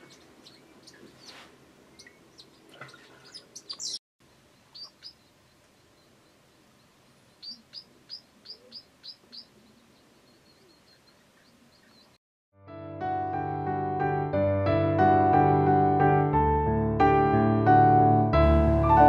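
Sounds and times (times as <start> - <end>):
wild birds calling: 0.0 - 12.2.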